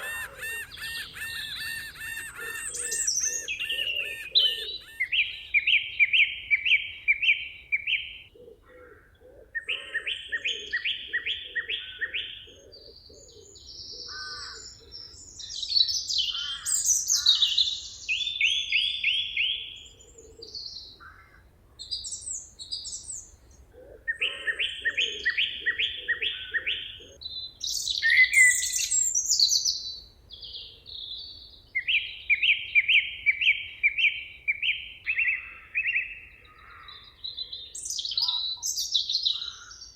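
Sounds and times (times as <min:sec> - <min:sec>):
songbird repeating phrase: 0:00.0 - 0:05.7
bird chirps and trills: 0:00.0 - 0:05.8.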